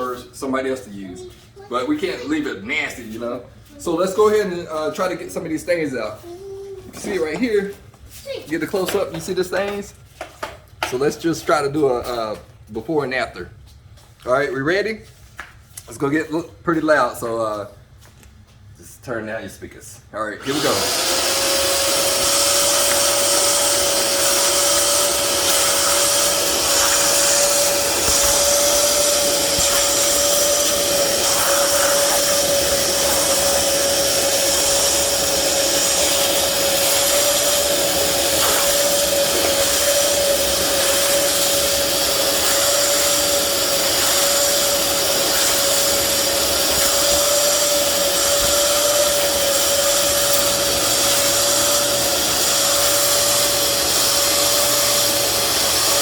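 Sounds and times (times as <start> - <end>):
carpet cleaner motor whine: 20.4 - 56.0.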